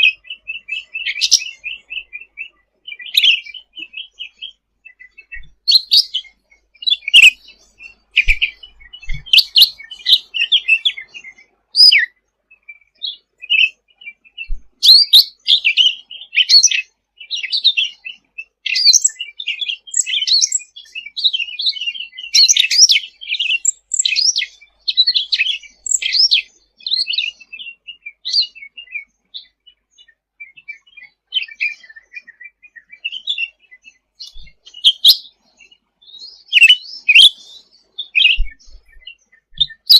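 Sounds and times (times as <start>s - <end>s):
bird singing rapid chirps and trills: 0.0s - 39.9s.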